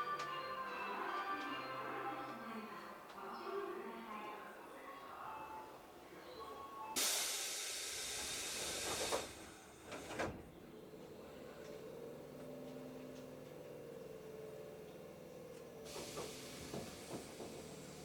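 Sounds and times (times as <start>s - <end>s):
compressed air hiss: 7.0s - 9.7s, 15.9s - 18.0s
train doors shutting: 7.0s - 18.0s.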